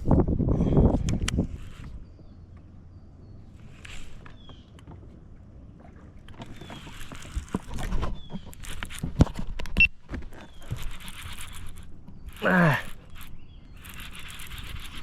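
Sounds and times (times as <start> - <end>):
fishing tackle clicks and knocks: 6.3 - 13.4.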